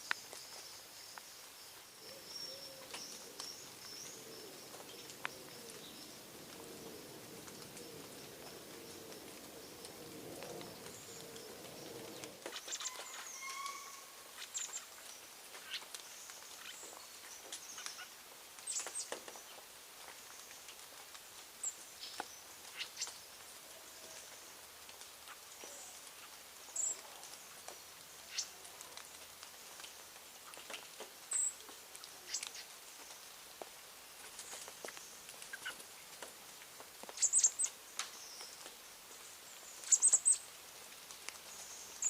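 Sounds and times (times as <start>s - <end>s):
bird cooing: 2.0s - 14.3s
high bird chirps: 12.7s - 14.0s.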